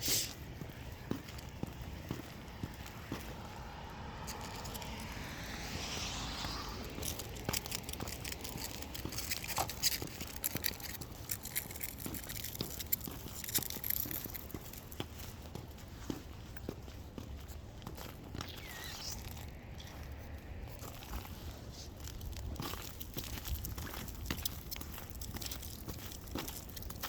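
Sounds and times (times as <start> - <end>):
footsteps crunching on icy pavement: 0.2 - 27.0
soft rushing sound: 0.4 - 10.4, 17.9 - 23.0.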